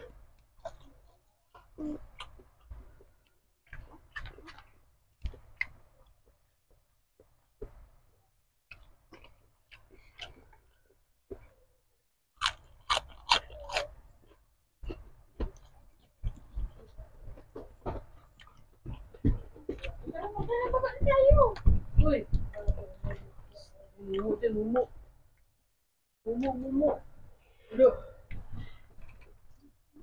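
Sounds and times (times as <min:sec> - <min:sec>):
person chewing and biting meat: 0:12.4 - 0:16.4.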